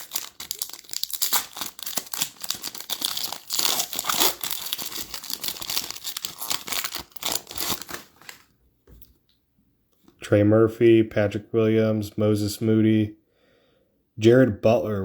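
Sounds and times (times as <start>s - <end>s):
card pack wrapper crinkling: 0.0s - 8.5s.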